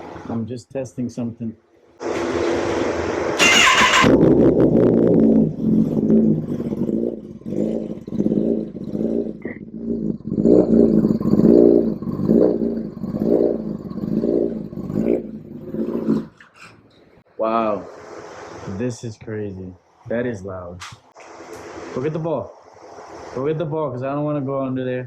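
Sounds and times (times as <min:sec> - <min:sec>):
motorcycle engine revving: 0:02.1 - 0:16.4.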